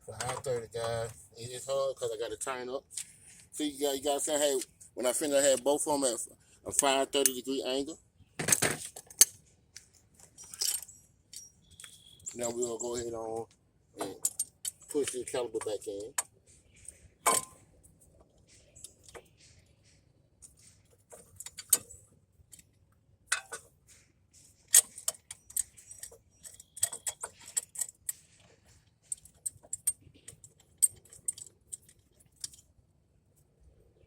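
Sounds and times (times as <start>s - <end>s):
metallic clinks of tools: 10.3s - 13.0s
sharp metal clanks: 17.2s - 17.6s.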